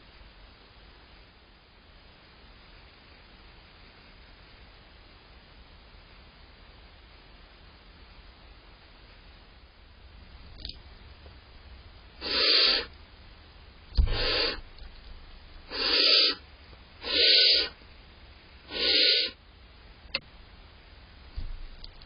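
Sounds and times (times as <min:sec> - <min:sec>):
owlets hissing calls: 0:12.2 - 0:13.0, 0:14.0 - 0:14.7, 0:15.6 - 0:16.4, 0:17.0 - 0:17.8, 0:18.6 - 0:19.4.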